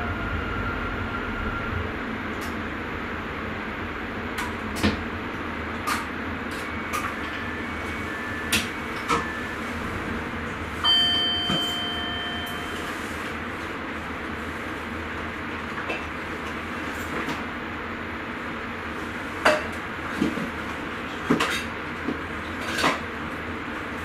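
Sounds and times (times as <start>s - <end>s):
electronic tone: 0.0s - 2.0s, 6.6s - 13.1s
train running rumble: 0.0s - 24.0s.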